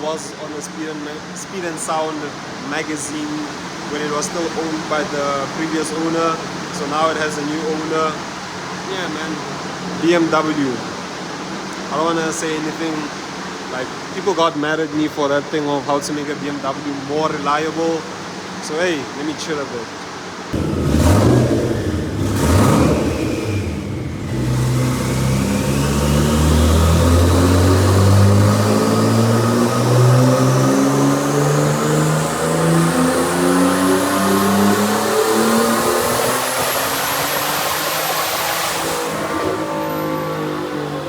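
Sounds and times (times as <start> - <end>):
car engine revving: 20.6 - 41.0
high turbo whistle: 20.6 - 41.0.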